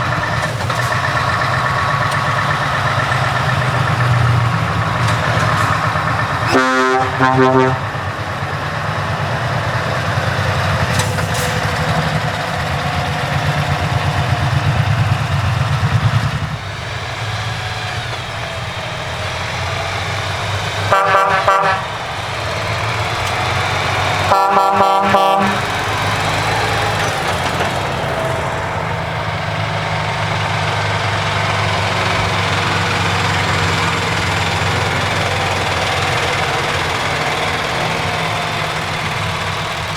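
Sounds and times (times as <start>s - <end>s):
truck horn blasts: 0.0s - 8.6s, 19.6s - 29.0s
heavy truck engine running: 0.0s - 39.9s.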